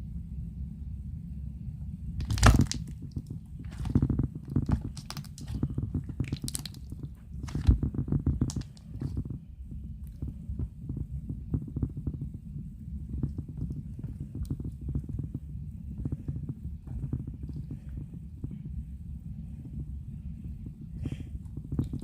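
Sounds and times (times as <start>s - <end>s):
slime popping and clicking: 2.2s - 2.9s, 6.2s - 7.7s
slime squelches: 2.2s - 9.3s.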